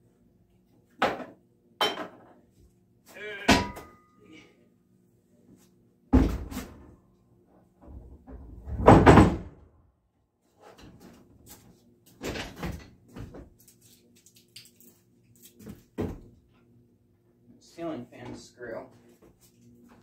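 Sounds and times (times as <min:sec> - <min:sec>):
heavy clunk of objects set down: 0:06.1 - 0:06.8.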